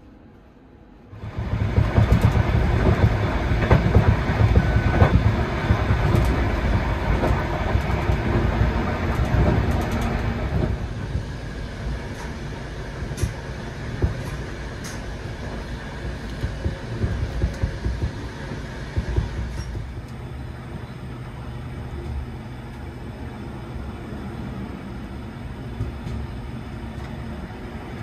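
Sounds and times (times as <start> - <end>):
passenger train rumbling: 0.0 - 28.0.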